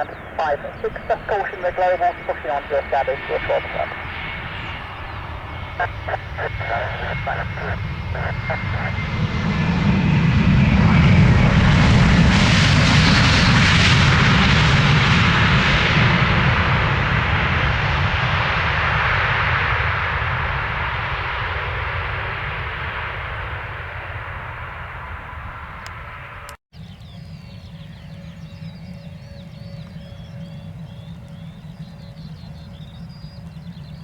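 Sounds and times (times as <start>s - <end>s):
birds chirping faintly: 0.0s - 9.2s, 26.8s - 34.0s
low steady hum: 0.0s - 9.8s
aircraft engines passing: 0.0s - 34.0s.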